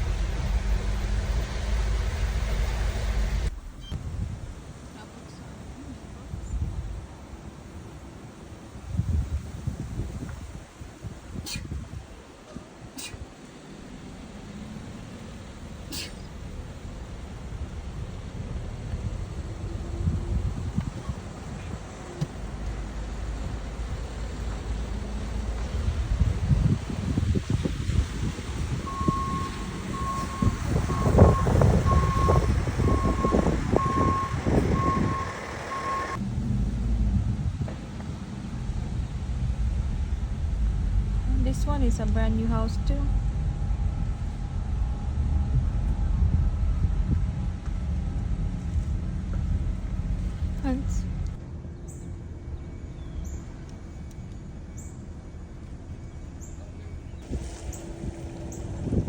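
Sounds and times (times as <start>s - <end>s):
heavy engine rumbling: 0.0s - 59.0s
reversing alarm beeping: 28.9s - 36.2s.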